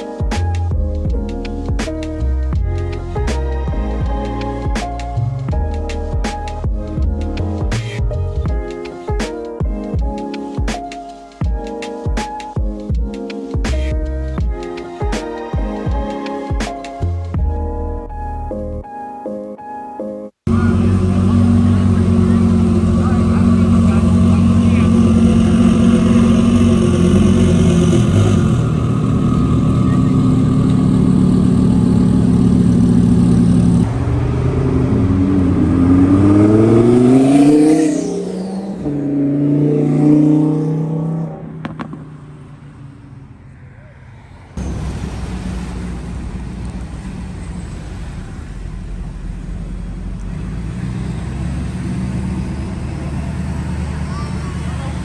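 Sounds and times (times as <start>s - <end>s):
pickup truck engine: 20.5s - 43.4s, 44.6s - 55.0s.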